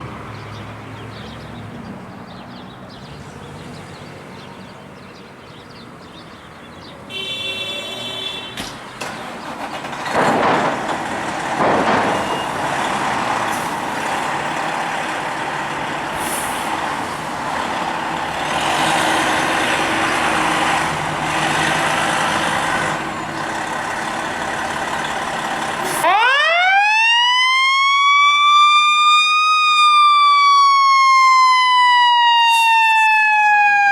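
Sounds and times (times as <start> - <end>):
fire engine truck noise: 7.1 - 33.9
siren wailing: 25.9 - 33.9.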